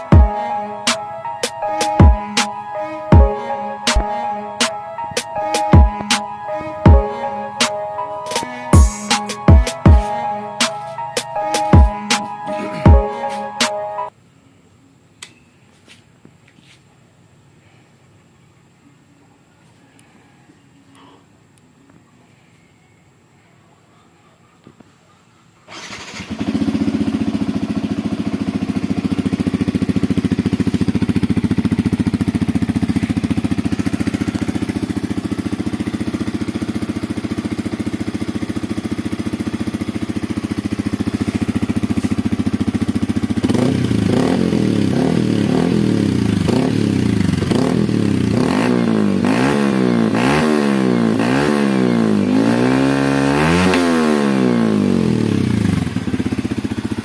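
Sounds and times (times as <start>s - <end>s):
motorcycle engine idling and revving: 25.7s - 57.0s.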